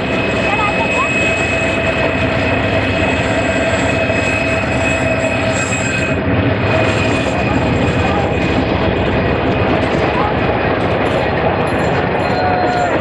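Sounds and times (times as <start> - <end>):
locomotive engine running: 0.0 - 13.0
train carriages rumbling: 0.0 - 13.0
high-pitched wheel squeal: 2.9 - 7.7.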